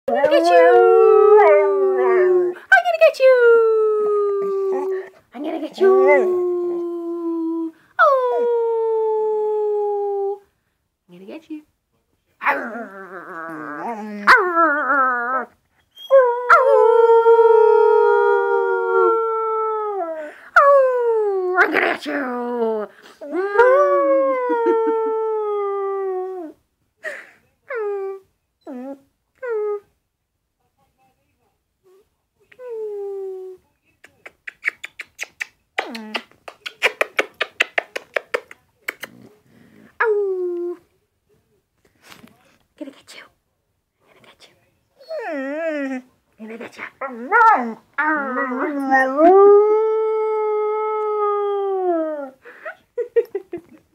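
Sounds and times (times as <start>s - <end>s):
puppy howling: 0.1s - 2.6s, 5.8s - 9.0s, 47.0s - 51.8s.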